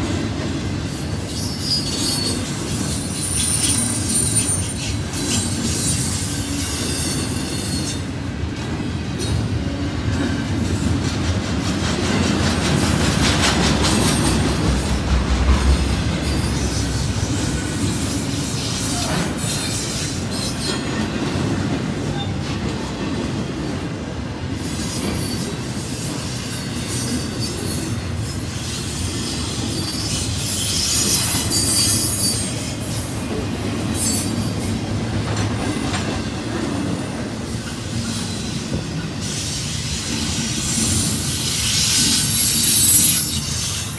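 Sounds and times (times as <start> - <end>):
freight train rumbling past: 0.0 - 43.9
high-pitched wheel squeal: 1.3 - 8.1, 26.6 - 32.7, 41.4 - 43.9.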